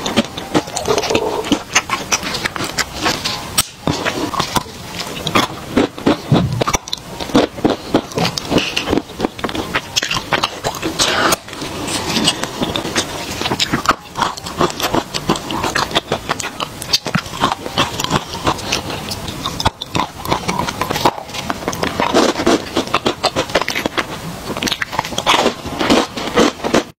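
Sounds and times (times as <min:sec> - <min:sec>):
crunching hard chocolate: 0:00.0 - 0:26.9.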